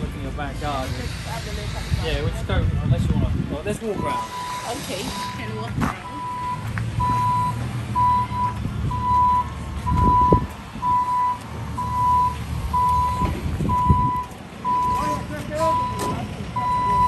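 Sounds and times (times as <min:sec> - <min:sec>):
vehicle engine running: 0:03.4 - 0:17.0
reversing alarm beeping: 0:03.9 - 0:17.0.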